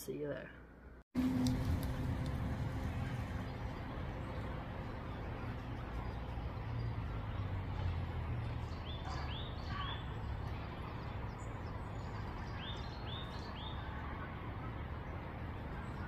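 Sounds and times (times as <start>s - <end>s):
low outdoor rumble: 0.5s - 16.0s
bird chirping: 3.1s - 14.2s.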